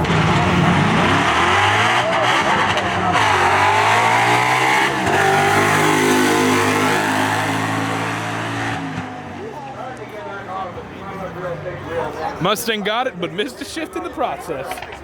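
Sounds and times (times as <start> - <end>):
cars accelerating hard: 0.0 - 10.0.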